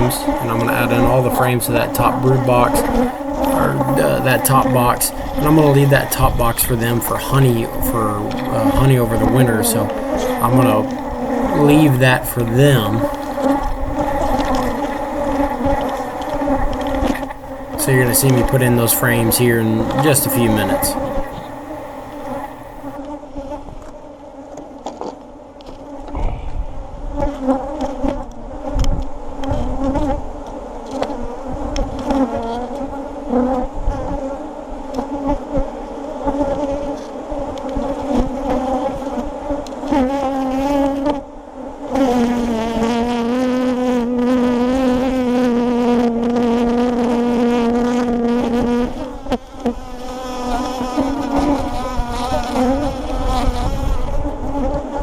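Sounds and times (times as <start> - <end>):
single bee buzzing close: 0.0 - 23.0, 37.8 - 55.0
bees buzzing around hive: 0.0 - 23.1, 34.2 - 55.0.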